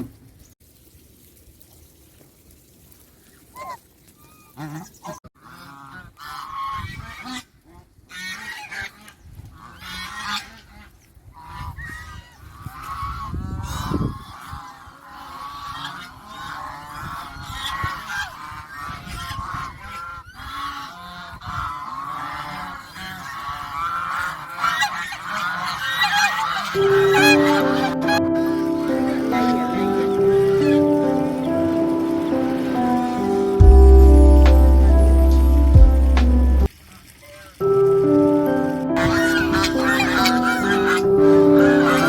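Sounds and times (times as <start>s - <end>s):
geese honking: 20.4s - 36.7s, 37.7s - 42.0s
low rumble: 33.6s - 36.7s.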